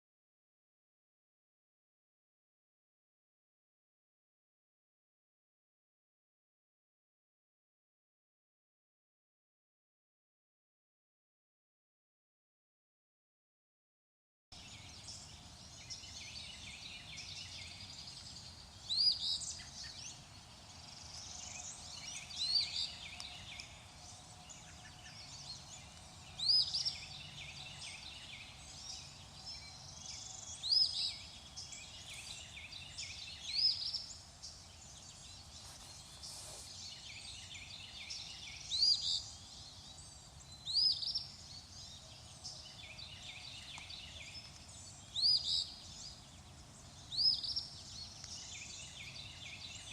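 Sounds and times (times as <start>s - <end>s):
faint background hiss: 14.6s - 49.9s
songbirds chorus: 14.6s - 49.9s.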